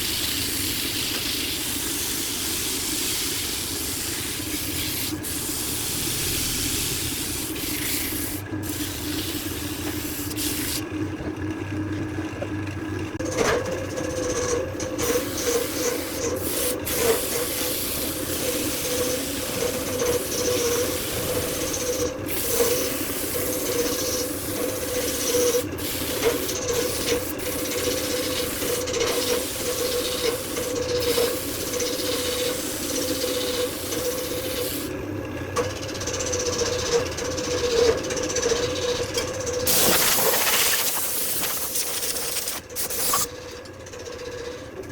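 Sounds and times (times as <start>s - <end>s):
lathe motor humming: 13.8s - 35.0s.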